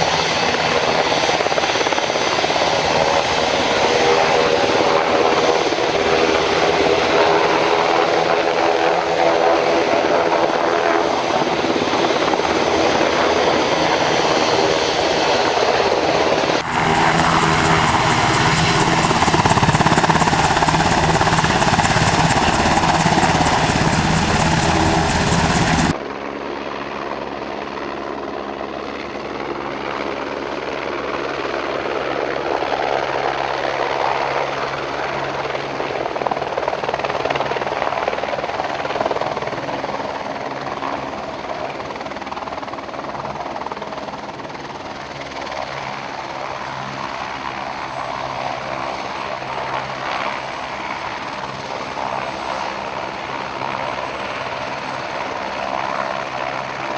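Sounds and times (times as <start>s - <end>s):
helicopter running: 0.0s - 26.1s, 41.7s - 56.9s
loud rough noise: 16.4s - 25.9s.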